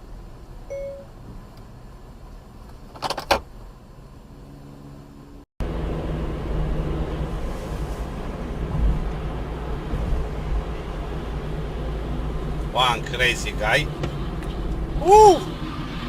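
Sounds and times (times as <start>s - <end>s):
road noise: 0.0s - 16.0s
short beep: 0.7s - 1.1s
engine drone: 4.3s - 16.0s.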